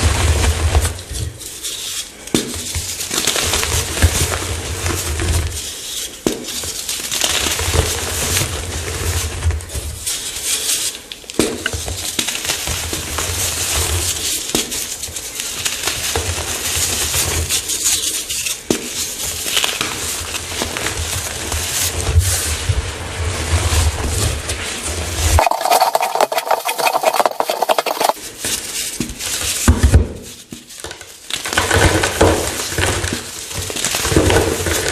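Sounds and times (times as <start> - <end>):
chalk being crushed: 25.4 - 28.2.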